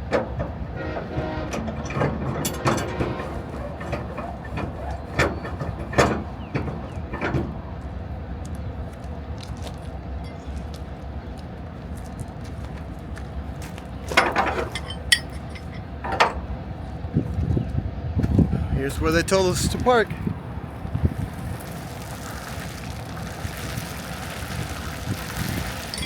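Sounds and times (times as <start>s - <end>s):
truck engine rumbling: 0.0s - 26.0s
sharp clinks and rattles: 1.8s - 6.3s, 10.2s - 10.6s, 14.1s - 16.5s, 25.7s - 26.0s.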